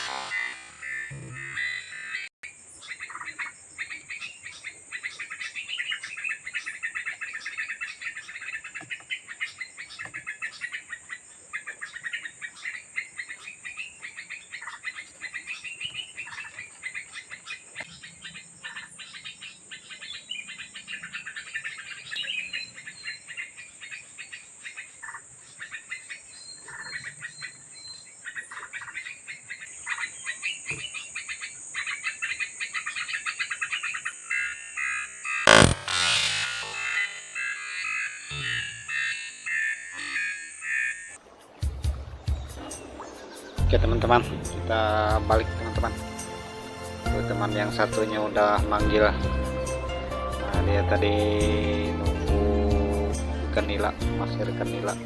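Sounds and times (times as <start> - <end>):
small birds chirping: 0.0 - 41.2
high-pitched insect drone: 35.5 - 38.8.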